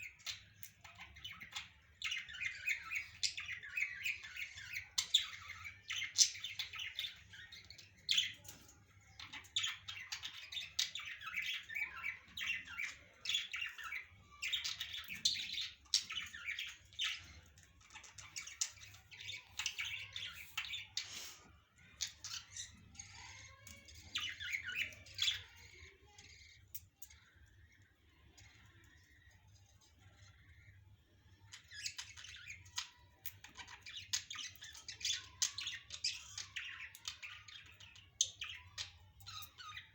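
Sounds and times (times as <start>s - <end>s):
parrots chattering: 0.0s - 39.9s.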